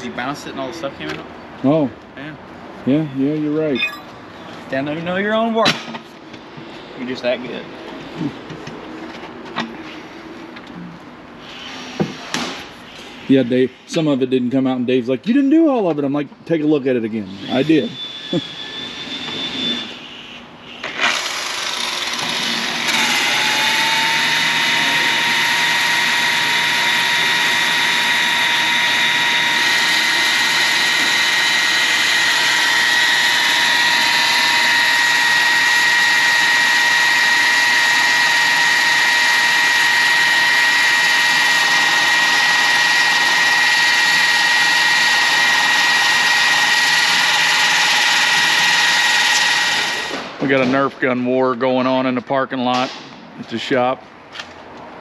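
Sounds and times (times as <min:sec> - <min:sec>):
power tool whining: 0:17.4 - 0:20.0, 0:20.8 - 0:50.3.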